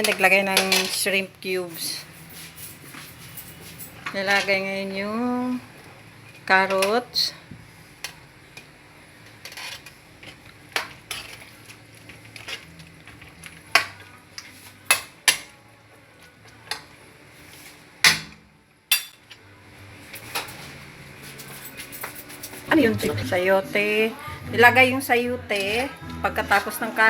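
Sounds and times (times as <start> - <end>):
metal utensil scraping a pan: 9.4 - 10.0.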